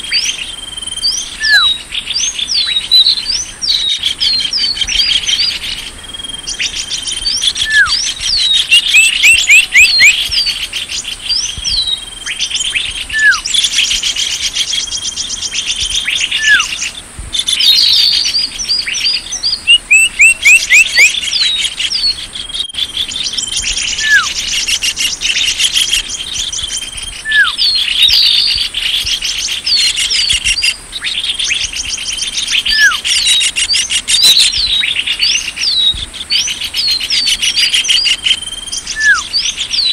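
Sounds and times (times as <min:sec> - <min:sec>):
small birds chirping and trilling: 0:00.0 - 0:39.9
falling whistles: 0:07.2 - 0:10.2, 0:11.6 - 0:13.5, 0:16.4 - 0:16.7, 0:23.9 - 0:24.4, 0:26.7 - 0:28.6, 0:32.7 - 0:33.0, 0:37.9 - 0:39.3.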